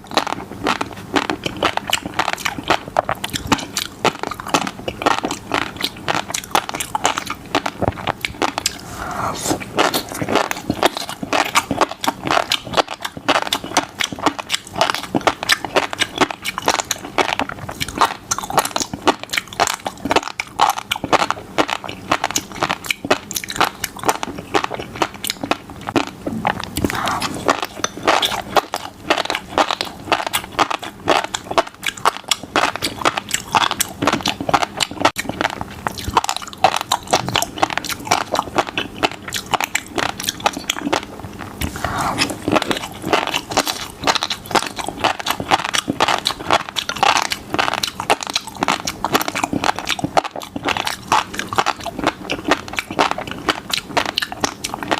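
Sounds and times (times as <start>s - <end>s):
fish roe popping while chewed: 0.1s - 8.8s.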